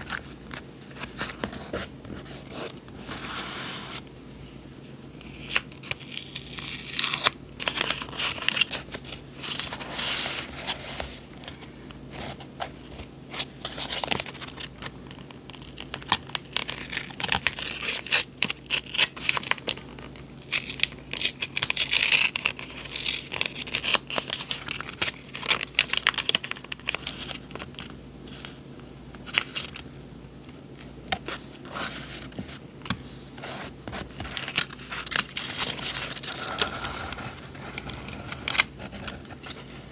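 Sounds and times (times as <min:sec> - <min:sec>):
paper rustling and tearing: 0:15.8 - 0:28.6, 0:33.4 - 0:39.9.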